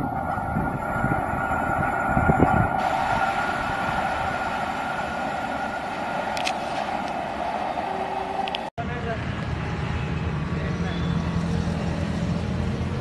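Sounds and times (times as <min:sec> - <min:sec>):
train wheels rolling on rails: 0:00.0 - 0:08.7.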